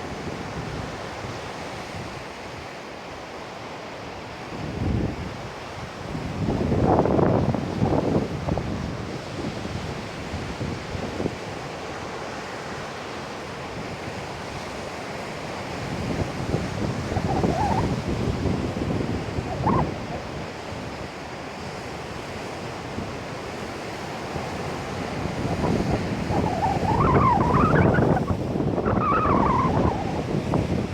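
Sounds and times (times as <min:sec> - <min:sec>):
wind buffeting microphone: 0:04.5 - 0:11.7, 0:13.8 - 0:30.9
heavy surf breaking: 0:15.2 - 0:30.9.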